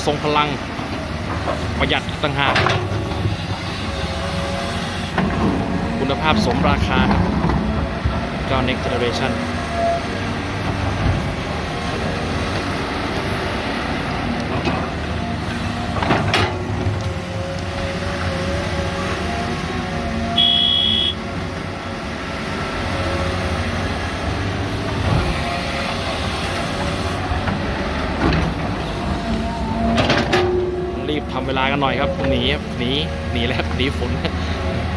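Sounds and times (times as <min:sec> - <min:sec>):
diesel engine drone: 0:00.0 - 0:34.9
hydraulic whine: 0:00.0 - 0:34.9
short high beep: 0:20.4 - 0:21.2.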